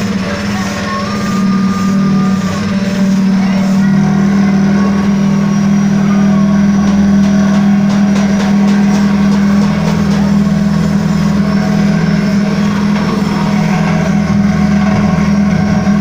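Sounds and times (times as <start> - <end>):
pellet press motor humming: 0.0 - 16.0.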